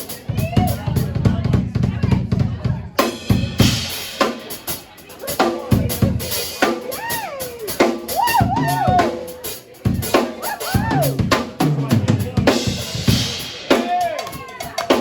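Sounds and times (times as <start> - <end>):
drum kit beat: 0.0 - 15.0
bass line: 5.6 - 14.0.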